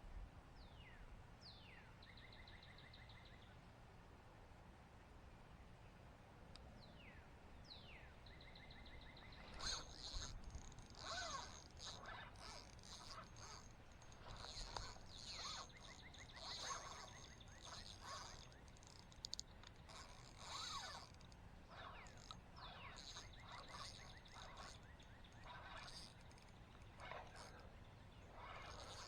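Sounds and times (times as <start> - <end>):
wild birds chirping: 7.7 - 29.0
sharp clicks: 9.8 - 21.4.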